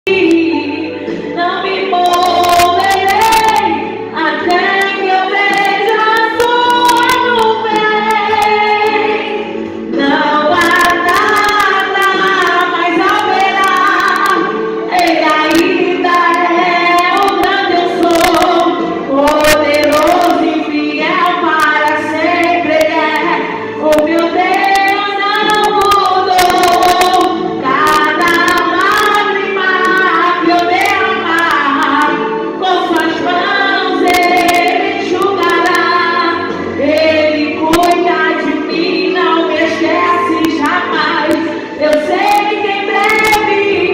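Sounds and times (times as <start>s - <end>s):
woman singing: 0.0s - 43.9s.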